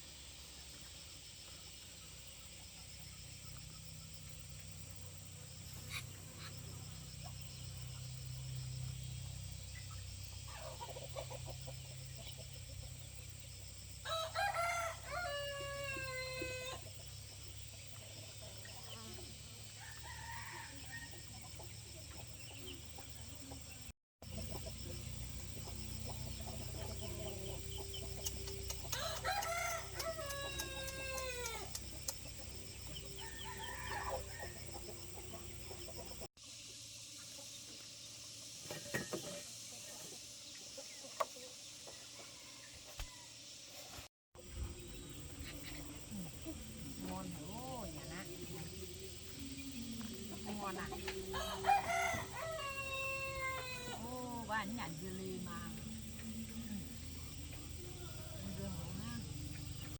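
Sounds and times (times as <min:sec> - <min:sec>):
rooster crowing: 0:14.0 - 0:16.8, 0:19.8 - 0:21.4, 0:27.0 - 0:31.8, 0:32.9 - 0:35.5, 0:51.2 - 0:54.1
hen clucking: 0:24.3 - 0:36.3.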